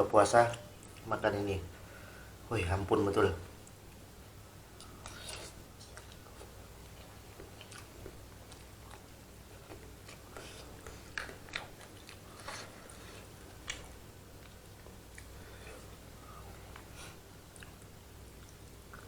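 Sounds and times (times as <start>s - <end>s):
person chewing noodles: 4.7s - 19.0s.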